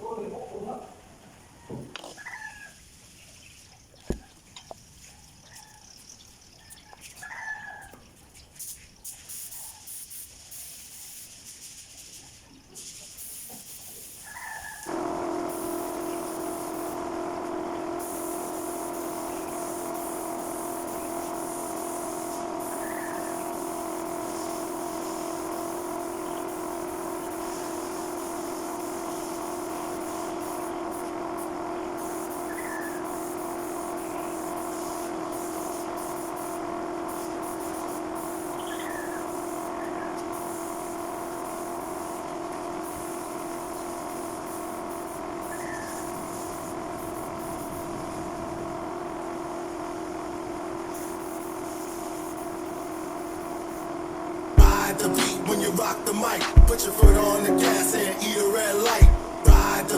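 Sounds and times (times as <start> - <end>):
hiss: 8.5 - 48.6, 50.8 - 53.9
machine motor hum: 14.9 - 59.9
faint high chirps: 38.5 - 40.2.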